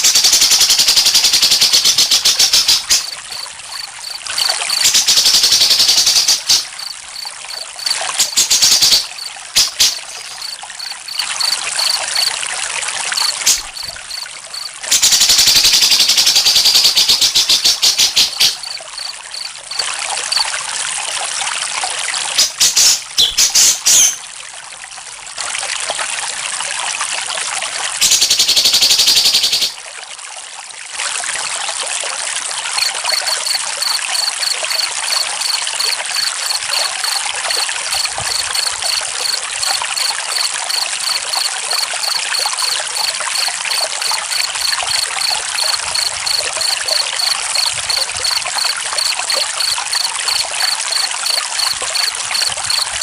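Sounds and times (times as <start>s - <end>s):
water trickling: 0.0s - 53.0s
cricket chirping: 0.1s - 20.6s, 32.8s - 53.0s.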